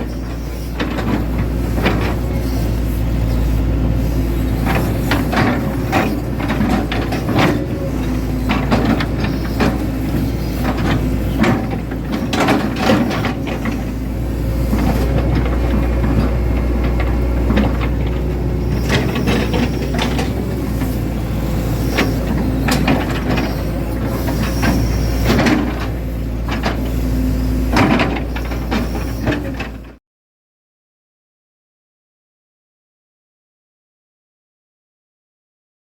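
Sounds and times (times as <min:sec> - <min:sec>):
excavator diesel engine running: 0:00.0 - 0:30.0
excavator gear knocks and clanks: 0:04.7 - 0:14.0, 0:14.7 - 0:20.9, 0:22.0 - 0:23.5, 0:27.7 - 0:30.0.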